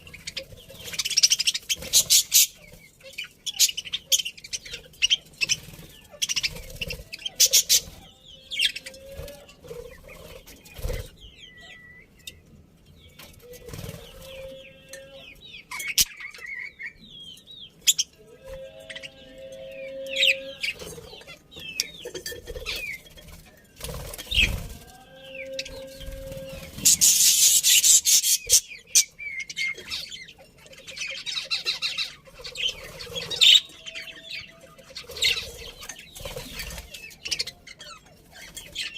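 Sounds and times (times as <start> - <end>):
budgerigars chirping: 0.0 - 12.4, 25.3 - 38.9
wings flapping: 23.2 - 24.9.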